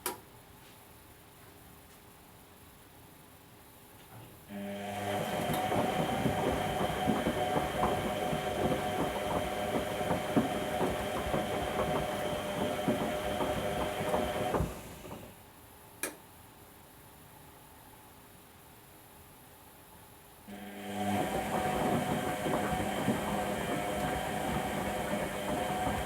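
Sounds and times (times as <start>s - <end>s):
washing machine motor whining: 4.5s - 15.3s, 20.5s - 26.0s.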